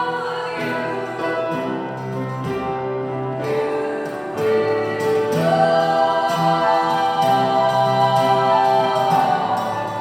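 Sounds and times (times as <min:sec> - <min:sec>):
instrumental accompaniment: 0:00.0 - 0:10.0
wordless sung harmonies: 0:00.0 - 0:10.0.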